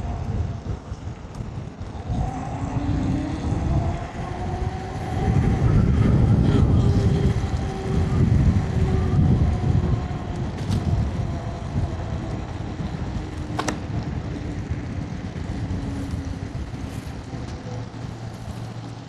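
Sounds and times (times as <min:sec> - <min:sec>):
faint electric motor whine: 0:00.0 - 0:19.0
wind buffeting microphone: 0:00.0 - 0:19.0.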